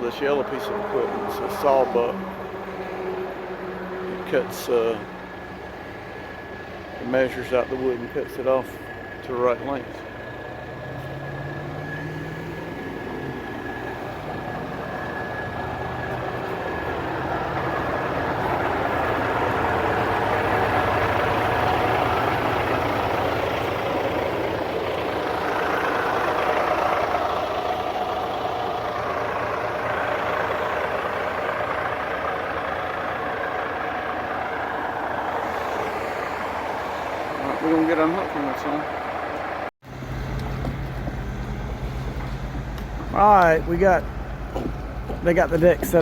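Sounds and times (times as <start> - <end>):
heavy diesel engine running: 0.0 - 46.0.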